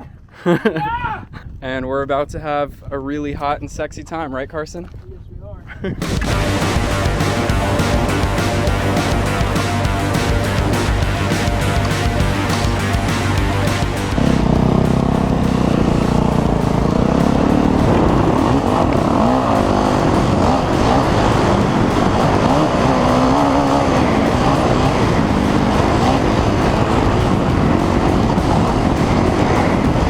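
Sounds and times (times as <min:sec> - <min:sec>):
dirt bike engine revving: 0:06.0 - 0:30.0.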